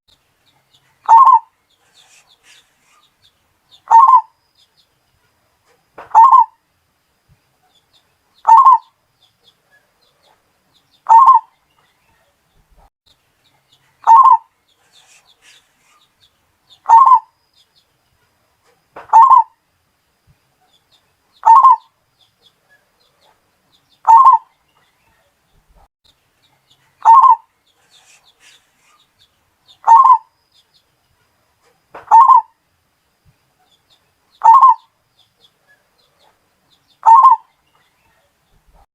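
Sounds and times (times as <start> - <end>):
dove cooing: 1.0 - 2.6, 3.9 - 4.3, 6.1 - 6.6, 8.4 - 8.9, 11.1 - 11.5, 14.0 - 15.6, 16.8 - 17.3, 19.1 - 19.5, 21.4 - 21.9, 24.0 - 24.5, 27.0 - 28.6, 29.8 - 30.3, 32.1 - 32.5, 34.4 - 34.8, 37.0 - 37.5.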